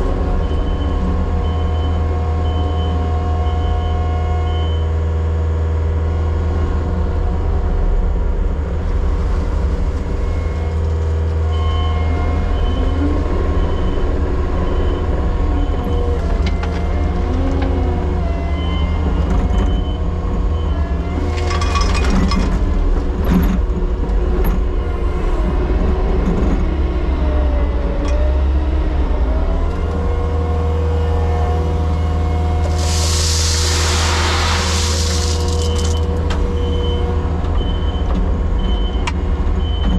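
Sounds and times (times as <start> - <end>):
heavy machinery engine droning: 0.0 - 39.9
loud hiss: 32.6 - 36.1
short noisy bursts: 32.6 - 36.1.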